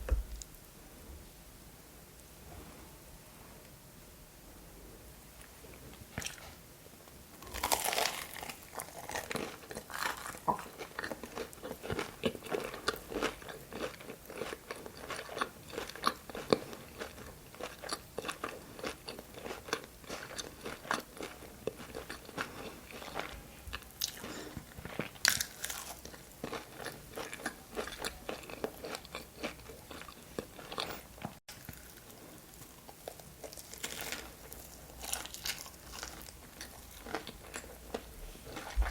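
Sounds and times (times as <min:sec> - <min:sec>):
wet chewing and crunching: 0:05.7 - 0:06.6, 0:07.4 - 0:38.9
crunchy food bites: 0:07.4 - 0:32.1, 0:33.0 - 0:38.9.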